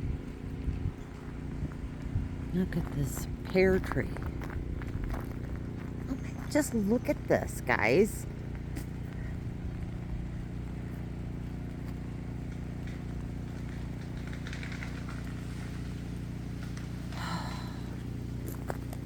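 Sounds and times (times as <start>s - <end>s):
generator humming: 0.0s - 19.0s
faint crackle: 0.2s - 7.4s, 8.2s - 19.0s.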